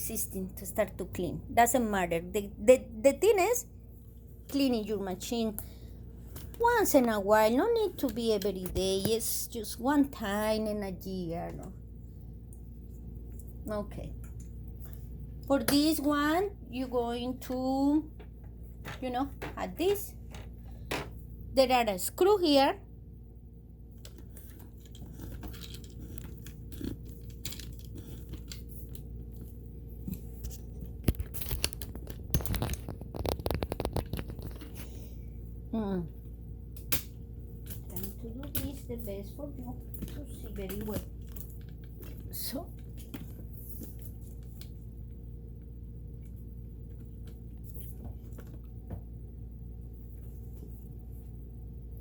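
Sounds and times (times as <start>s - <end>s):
steady low hum: 0.0s - 52.0s
small parts clicking and tapping: 24.0s - 34.8s.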